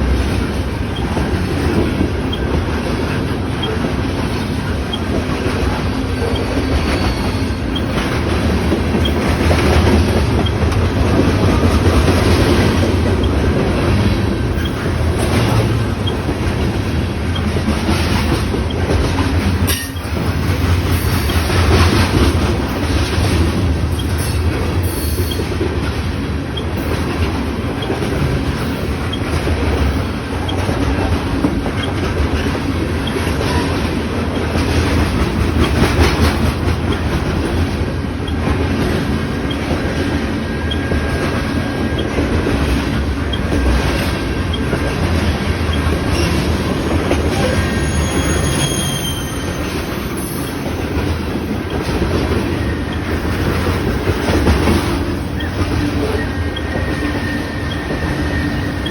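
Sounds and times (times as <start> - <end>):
train wheels rumbling on rails: 0.0 - 58.9
high wheel squeals: 5.8 - 8.2, 23.9 - 25.5, 45.7 - 54.4, 55.0 - 58.9.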